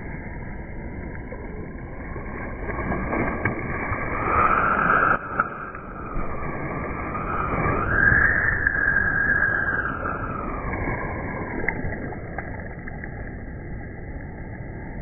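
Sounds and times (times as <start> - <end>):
ocean waves rushing: 1.9 - 12.2.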